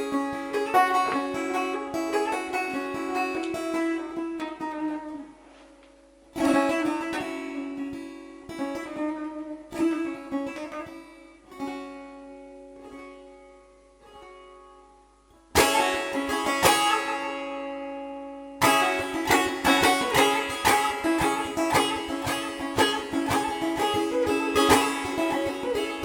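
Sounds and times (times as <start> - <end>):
fast lute strumming: 0.0 - 5.3, 15.6 - 26.0
plucked lute phrases: 0.0 - 26.0
open-string drone: 18.6 - 26.0.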